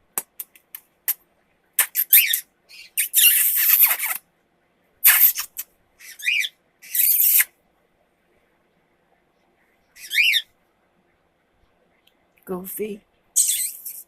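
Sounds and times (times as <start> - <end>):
bird chirping: 1.8 - 4.2, 5.0 - 7.5, 9.9 - 10.6, 13.4 - 14.0
bird screeching: 5.1 - 7.5, 10.0 - 10.5, 13.4 - 14.0.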